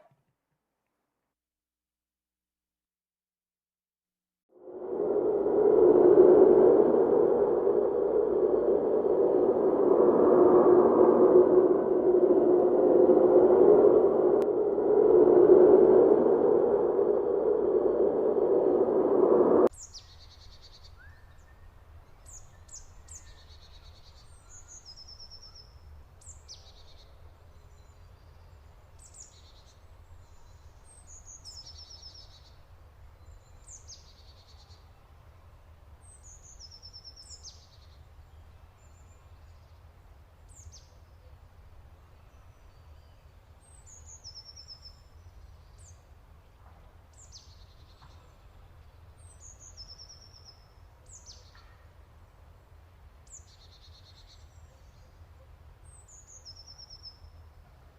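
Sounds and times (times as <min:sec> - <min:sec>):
faint low rumble: 0:04.6 - 0:19.7.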